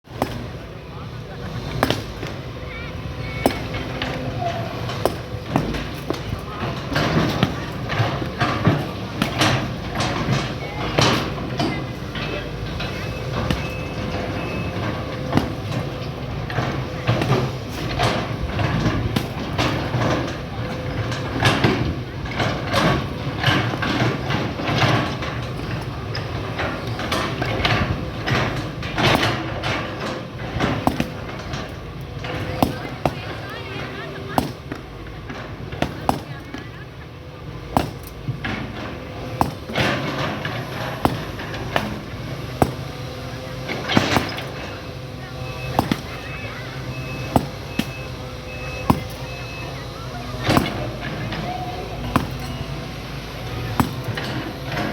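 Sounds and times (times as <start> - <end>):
excavator engine running: 0.1 - 54.9
sharp knocks: 26.6 - 33.4, 37.7 - 43.1, 45.7 - 46.4, 47.1 - 48.2, 48.8 - 49.5, 50.4 - 51.2, 52.0 - 52.9, 53.6 - 54.9
metallic knocks and scrapes: 45.6 - 49.6, 50.4 - 54.9.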